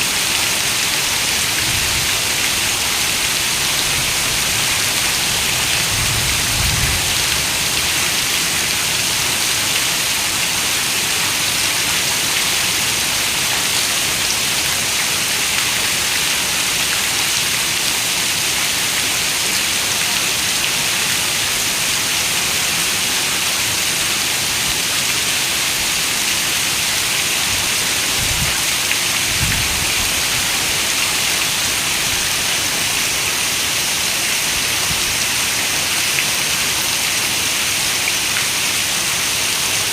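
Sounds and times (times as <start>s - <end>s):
heavy rain on a window: 0.1s - 39.9s.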